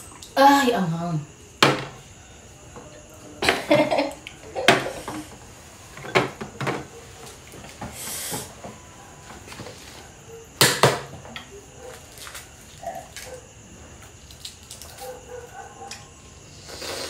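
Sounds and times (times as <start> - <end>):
short hiss: 8.0 - 8.5, 16.6 - 17.0.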